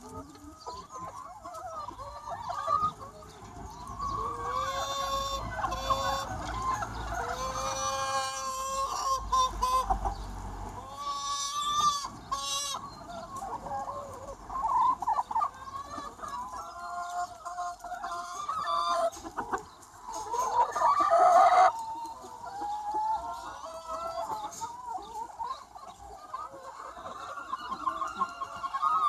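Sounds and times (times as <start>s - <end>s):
chickens clucking and calling: 0.0s - 29.0s.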